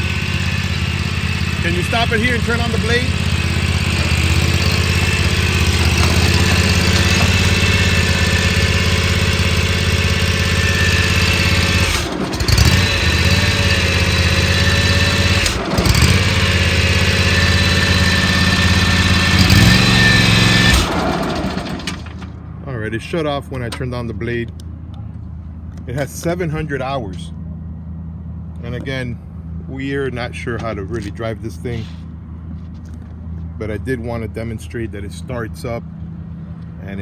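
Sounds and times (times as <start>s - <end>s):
lawn mower engine running: 0.0s - 22.5s.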